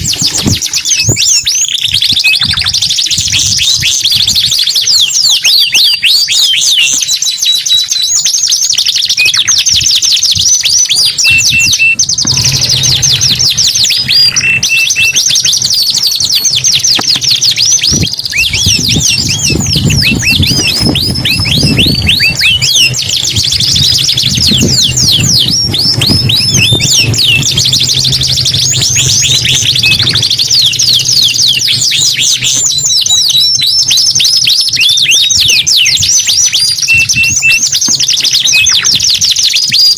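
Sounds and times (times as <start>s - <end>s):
canary singing trills: 0.0s - 39.9s
low hum: 11.4s - 33.0s.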